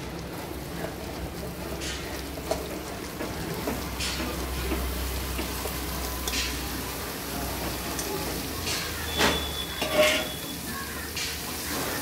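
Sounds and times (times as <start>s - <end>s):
food sizzling in a wok: 0.0s - 12.0s
pieces tipped from a steel bowl: 8.7s - 10.4s.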